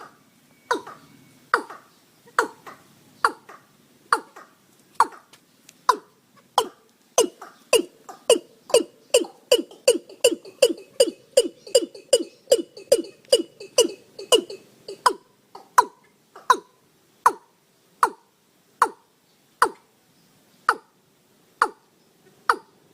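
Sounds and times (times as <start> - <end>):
bird calling hollow notes: 5.9 - 16.7.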